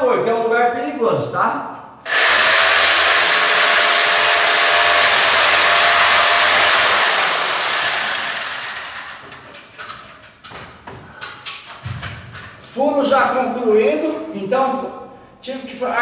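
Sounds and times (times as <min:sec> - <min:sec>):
electric drill boring a hole: 0:02.1 - 0:09.4.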